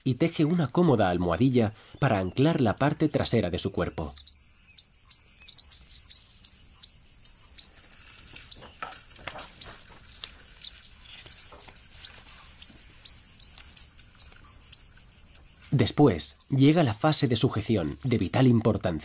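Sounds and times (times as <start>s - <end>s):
high-pitched insect trill: 0.0s - 19.0s
small bird chirping: 0.0s - 19.0s.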